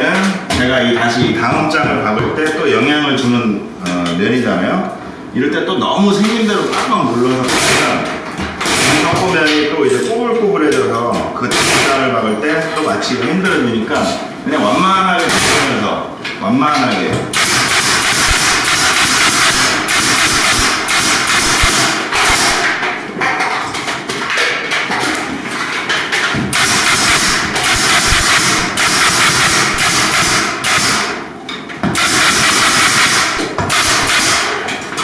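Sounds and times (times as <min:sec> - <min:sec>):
pneumatic stapler firing: 0:07.5 - 0:08.0, 0:08.6 - 0:09.2, 0:11.5 - 0:12.0, 0:15.2 - 0:15.7, 0:17.3 - 0:22.8, 0:26.5 - 0:31.2, 0:31.9 - 0:34.6
loud steady air hiss: 0:17.3 - 0:22.7, 0:26.5 - 0:31.3, 0:31.9 - 0:34.6.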